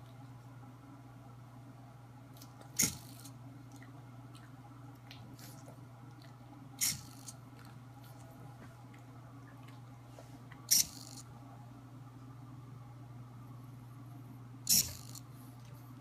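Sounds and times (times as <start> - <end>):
steady low hum: 0.0 - 16.0
servo moving: 2.8 - 3.3, 6.8 - 7.3, 10.7 - 11.2, 14.7 - 15.2.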